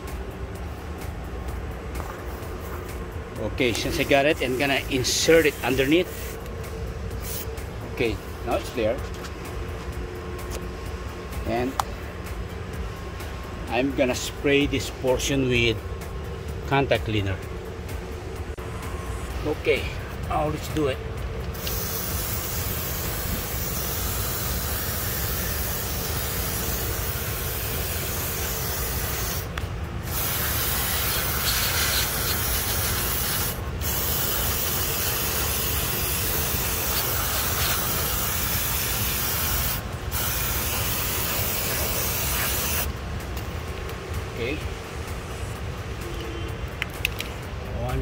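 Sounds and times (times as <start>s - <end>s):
aerosol can spraying: 3.8s - 6.5s, 7.2s - 7.5s, 21.6s - 29.5s, 30.1s - 42.9s.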